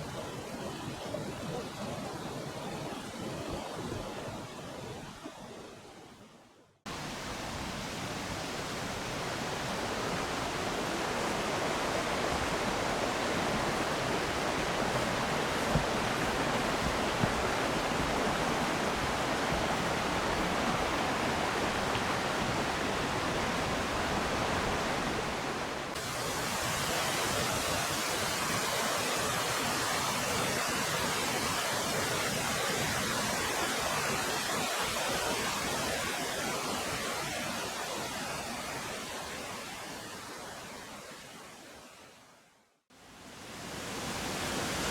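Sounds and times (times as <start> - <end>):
waterfall roaring: 6.9 - 38.6.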